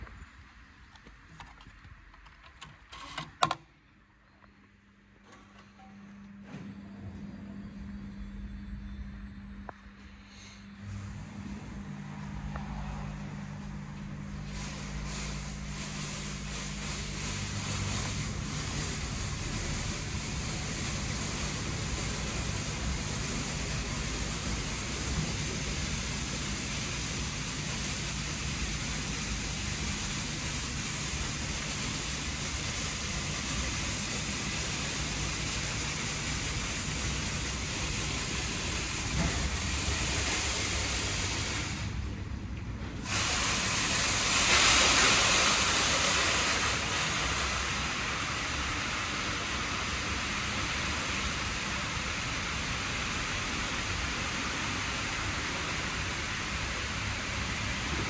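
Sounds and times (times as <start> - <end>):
car wash foam spraying: 14.2 - 42.0, 43.0 - 57.9
high-pressure water jets hissing: 14.4 - 41.9, 43.0 - 58.0.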